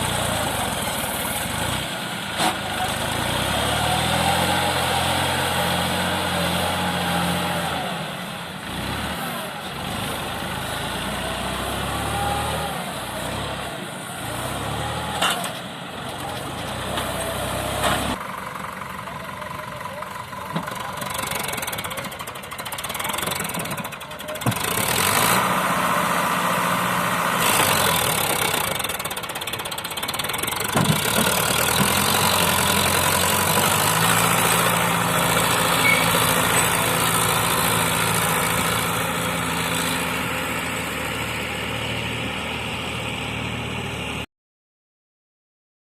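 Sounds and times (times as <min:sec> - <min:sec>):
tractor diesel engine running: 0:00.0 - 0:44.2.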